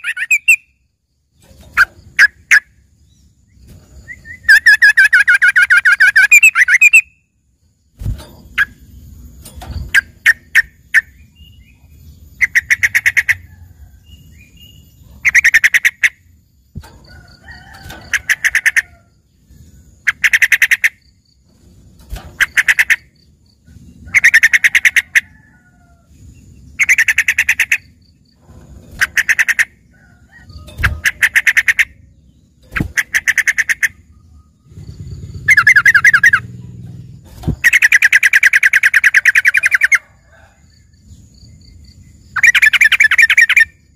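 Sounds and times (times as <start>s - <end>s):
bulbul singing chattering phrases: 34.7s - 39.9s.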